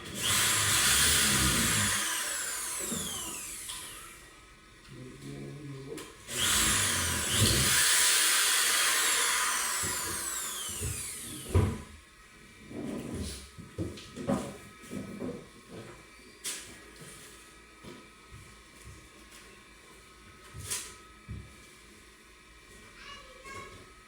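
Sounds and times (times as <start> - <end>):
power tool motor whine: 0.0 - 4.4, 6.3 - 11.9.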